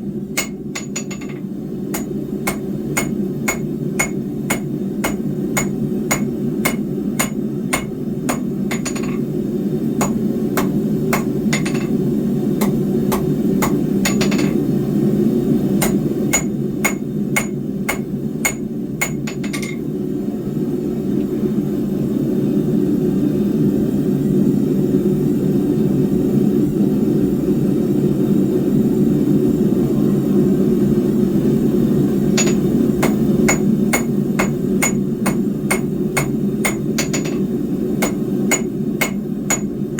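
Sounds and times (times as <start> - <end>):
hammer striking steel on anvil: 0.4 - 9.3, 10.0 - 12.0, 12.6 - 14.6, 15.8 - 19.8, 32.4 - 39.8.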